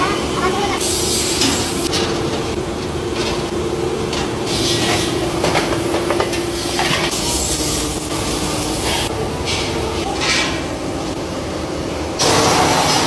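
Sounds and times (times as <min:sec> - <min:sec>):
metalworking machinery humming: 0:00.0 - 0:13.0
bursts of hissing: 0:00.6 - 0:01.9.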